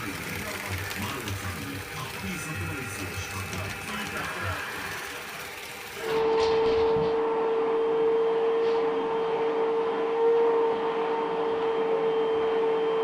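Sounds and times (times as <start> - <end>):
vacuum cleaner motor humming: 0.0 - 7.2.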